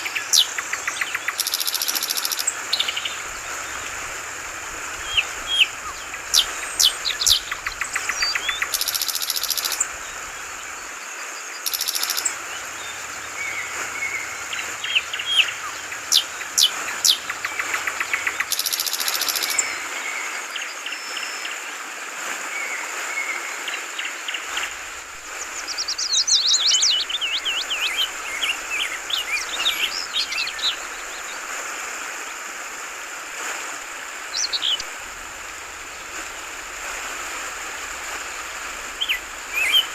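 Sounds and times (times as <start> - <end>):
bird chirping and trilling: 0.0 - 3.8, 5.0 - 9.9, 11.6 - 19.8, 39.0 - 39.9
trickling water: 0.0 - 39.9.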